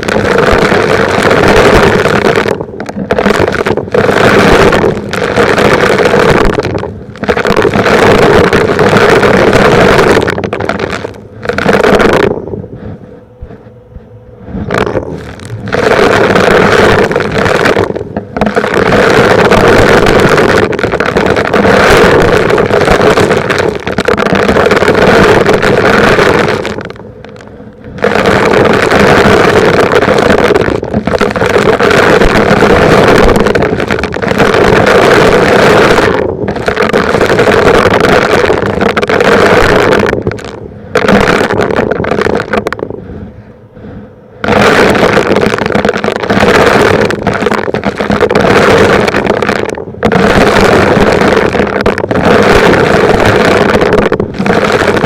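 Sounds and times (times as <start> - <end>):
debris scraping and crackling: 0.0 - 12.4, 14.6 - 43.0, 44.4 - 55.0.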